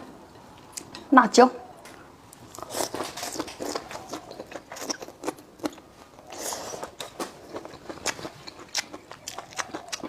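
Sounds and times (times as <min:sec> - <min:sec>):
person chewing crunchy food: 0:02.4 - 0:10.0.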